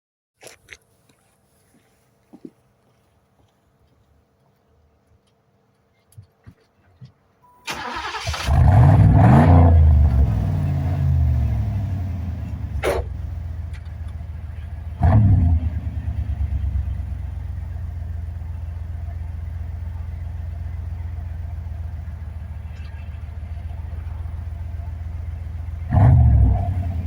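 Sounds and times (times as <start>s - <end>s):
engine throttle blip: 7.6s - 17.6s, 19.9s - 27.0s
car engine idling: 7.7s - 27.0s.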